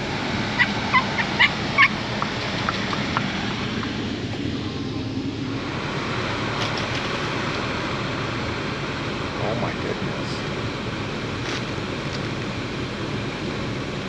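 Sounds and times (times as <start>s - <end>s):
outdoor background noise: 0.0s - 14.0s
high-pitched animal calls: 0.6s - 3.9s.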